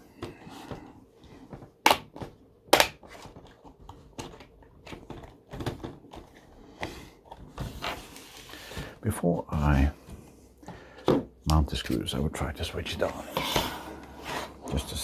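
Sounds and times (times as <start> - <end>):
plastic snapping and clicking: 1.9 - 2.2, 2.8 - 3.0.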